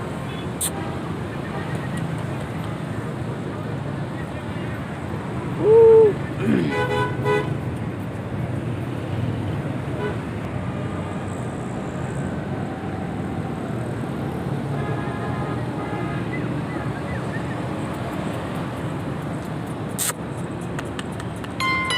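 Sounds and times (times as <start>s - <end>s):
traffic noise: 0.0s - 21.9s
sharp click: 20.0s - 21.6s.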